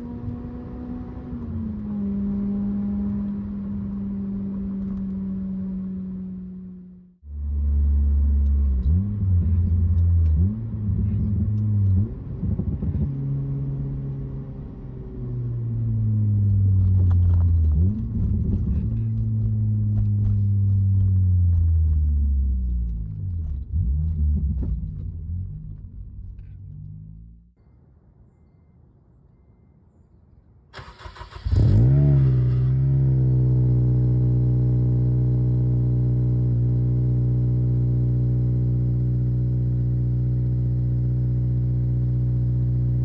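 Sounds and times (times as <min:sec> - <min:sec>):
deep engine exhaust revving: 0:31.2 - 0:43.0.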